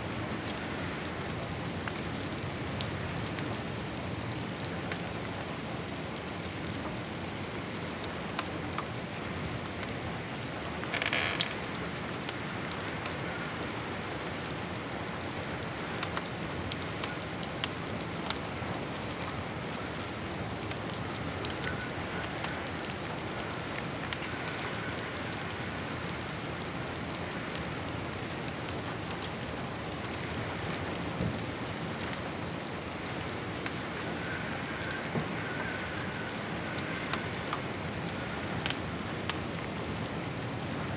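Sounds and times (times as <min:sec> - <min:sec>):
steady rain falling: 0:00.0 - 0:40.9
rasping crackle: 0:10.9 - 0:11.8.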